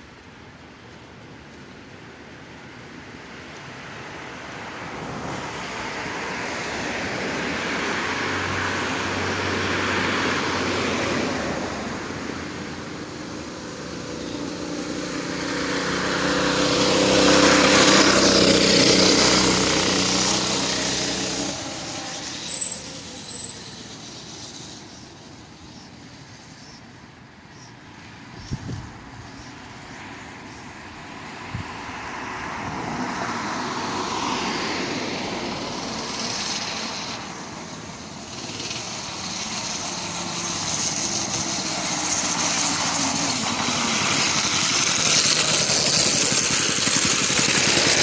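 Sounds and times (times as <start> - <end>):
road noise: 0.0 - 48.0
vehicle engine passing by: 4.6 - 25.9, 31.2 - 48.0.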